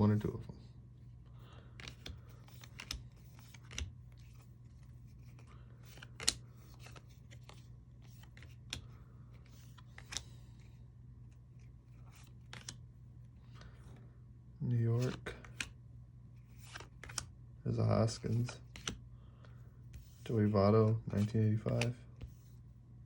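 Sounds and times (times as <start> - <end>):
trading cards clicking and rustling: 1.6 - 12.8, 15.0 - 15.8, 16.4 - 17.3, 18.0 - 19.0, 19.9 - 22.4
card snapping: 1.8 - 3.9, 5.9 - 7.4, 12.2 - 12.8.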